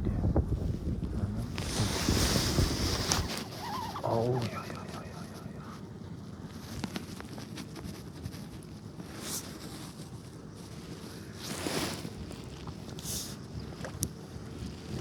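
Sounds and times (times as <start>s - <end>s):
wind buffeting microphone: 0.0s - 6.2s.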